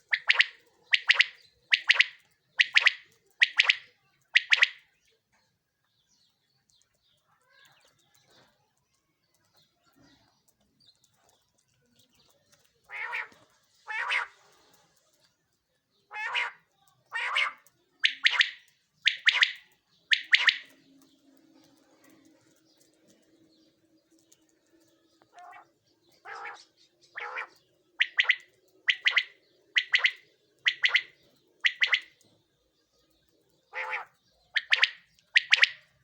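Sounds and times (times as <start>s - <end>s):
quail calling in sharp notes: 0.0s - 4.9s, 12.9s - 14.4s, 16.1s - 20.9s, 25.3s - 32.2s, 33.7s - 36.0s.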